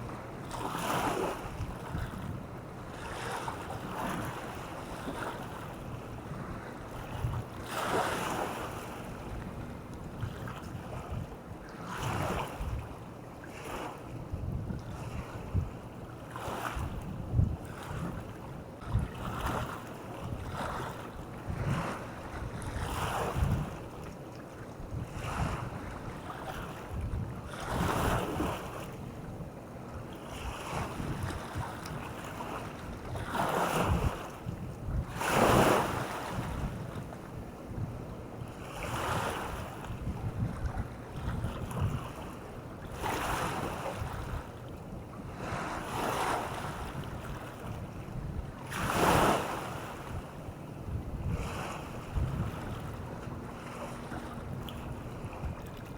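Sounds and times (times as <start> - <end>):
wind rumbling on microphone: 0.0 - 55.9
waves breaking on beach: 35.1 - 36.7, 41.2 - 44.5, 45.3 - 47.8, 48.6 - 50.2, 51.3 - 55.9.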